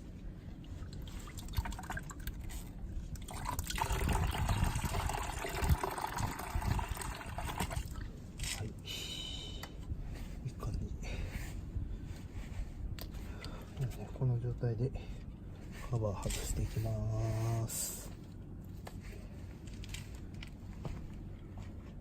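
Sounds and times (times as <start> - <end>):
liquid pouring: 0.9 - 2.6, 3.2 - 8.1
small handling sounds: 15.2 - 22.0.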